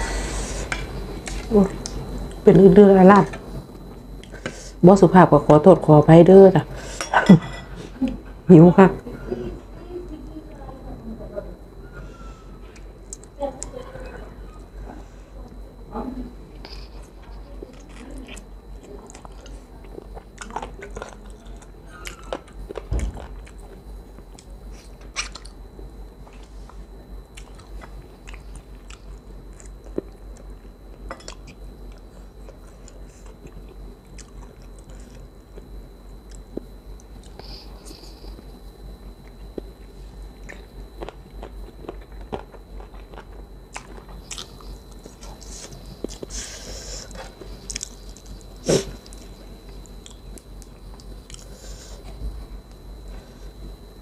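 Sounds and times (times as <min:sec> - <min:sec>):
chewing and biting: 0:17.7 - 0:25.6, 0:27.3 - 0:30.5, 0:31.3 - 0:38.4, 0:39.2 - 0:46.3, 0:47.1 - 0:51.5.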